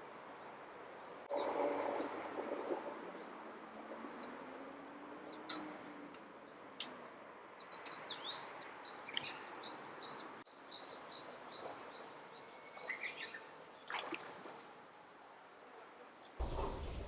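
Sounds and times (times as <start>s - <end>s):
background hiss: 16.4s - 17.0s.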